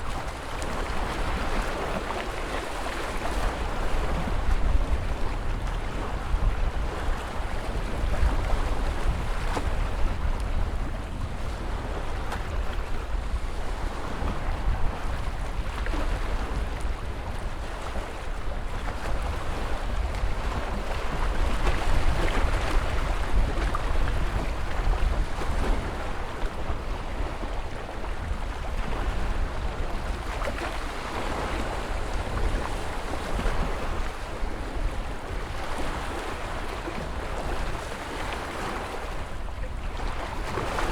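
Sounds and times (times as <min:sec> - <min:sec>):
waves breaking: 0:00.0 - 0:40.9.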